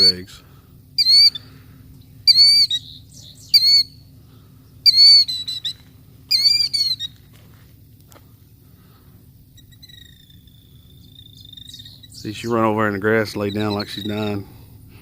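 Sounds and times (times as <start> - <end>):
killdeer shrill alarm calls: 0.0 - 7.3, 9.5 - 14.4.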